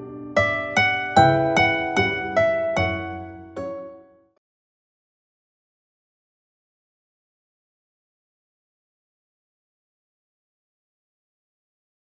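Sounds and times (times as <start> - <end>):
slow plucked-string melody: 0.0 - 4.3.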